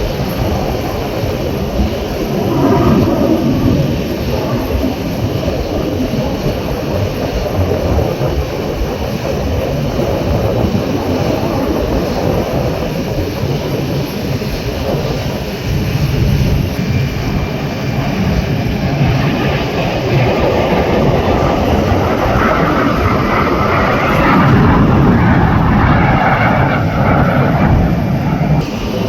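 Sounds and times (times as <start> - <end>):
jets flying overhead: 0.0 - 29.0.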